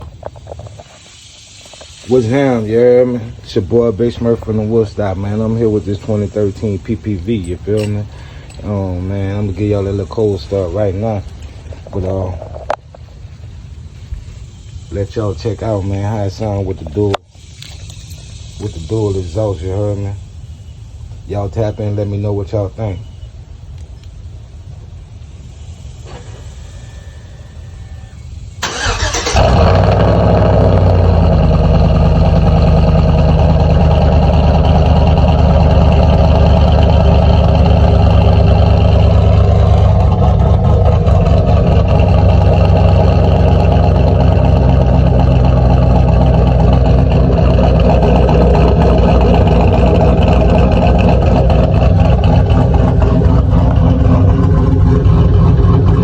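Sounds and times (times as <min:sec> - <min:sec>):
loud engine idling: 0:01.4 - 0:13.4, 0:26.0 - 0:56.0
engine cranking and revving: 0:02.0 - 0:12.5, 0:28.6 - 0:56.0.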